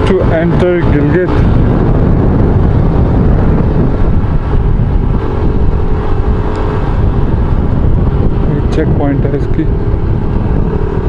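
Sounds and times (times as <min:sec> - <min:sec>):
motorcycle engine running: 0:00.0 - 0:11.0
wind on microphone: 0:00.0 - 0:11.0.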